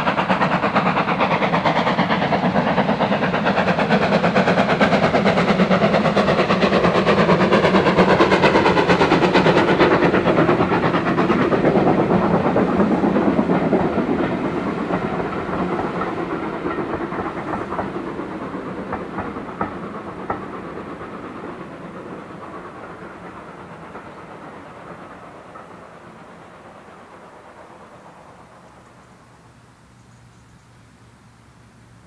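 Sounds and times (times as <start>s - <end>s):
wheels clicking over rail joints: 0.0s - 29.1s
train wheels rumbling on track: 0.0s - 32.0s.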